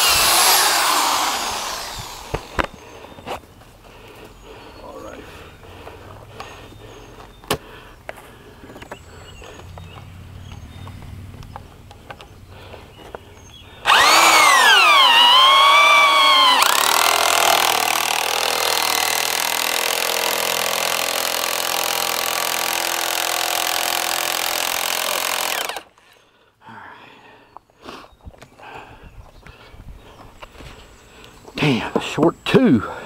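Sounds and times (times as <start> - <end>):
power saw cutting wood: 0.0 - 2.8, 13.8 - 25.8.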